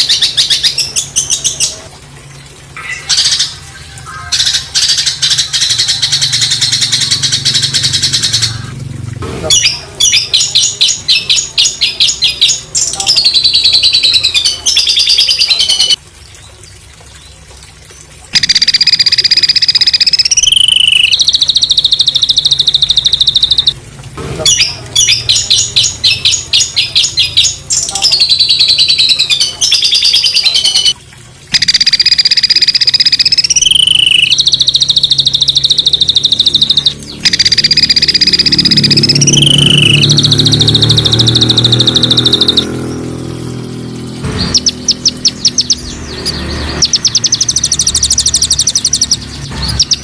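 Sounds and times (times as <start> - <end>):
bird whistled glide: 18.4 - 23.8, 31.6 - 42.7
songbird harsh staccato trills: 18.4 - 23.8, 24.4 - 43.2.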